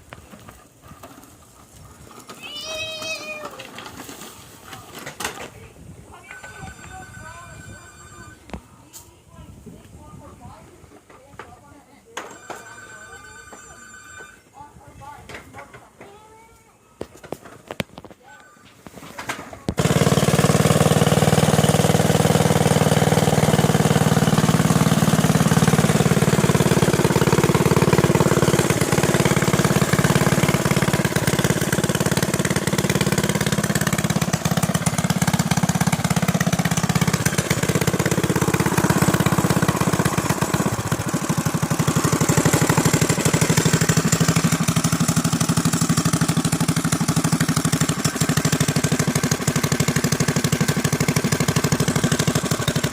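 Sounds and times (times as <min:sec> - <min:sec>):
small engine starting and running: 0:19.7 - 0:52.9.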